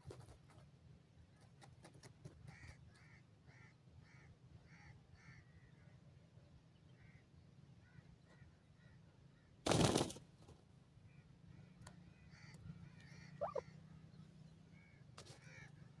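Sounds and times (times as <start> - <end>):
faint bird chirps and calls: 11.0 - 16.0.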